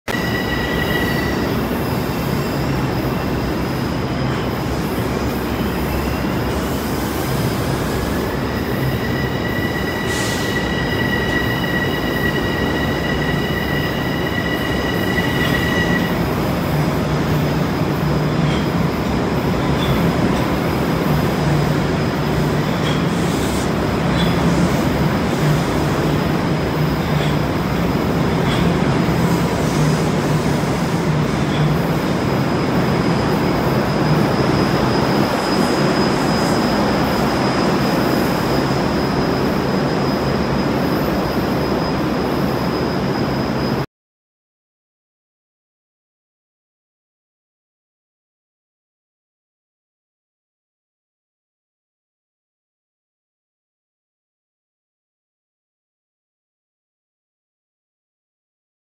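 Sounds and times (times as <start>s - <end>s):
high squeal: 0.1s - 16.8s, 21.7s - 43.9s.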